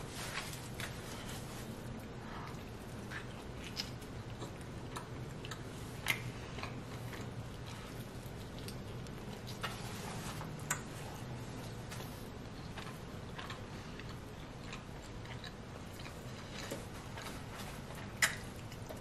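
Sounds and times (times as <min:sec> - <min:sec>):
person chewing pizza: 0:00.0 - 0:19.0
steady low hum: 0:00.0 - 0:19.0.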